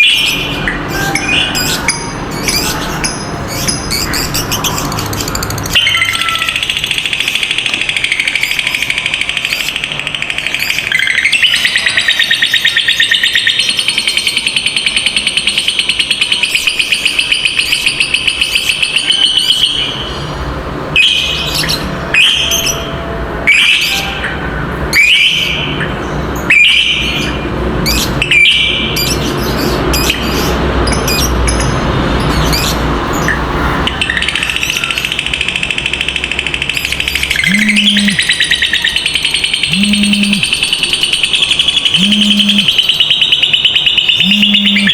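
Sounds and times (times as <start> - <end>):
lovebird chattering trill: 0.0 - 20.2, 33.9 - 44.9
bird chirps: 0.0 - 20.3, 25.0 - 44.9.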